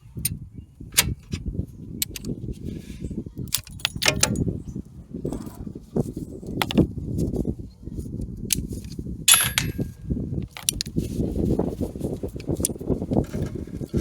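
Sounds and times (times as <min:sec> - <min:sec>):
metal tools clinking: 0:03.5 - 0:04.6, 0:09.3 - 0:10.8.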